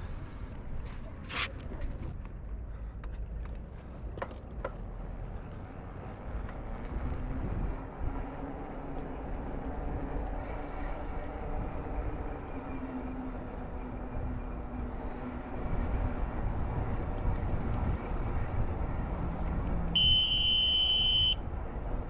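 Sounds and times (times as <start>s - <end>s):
wind and riding rumble: 0.0s - 20.3s, 21.4s - 22.0s.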